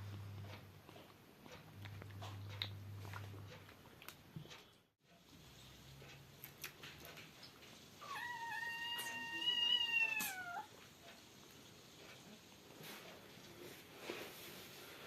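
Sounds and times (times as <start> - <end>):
kitten meowing: 8.0 - 10.7.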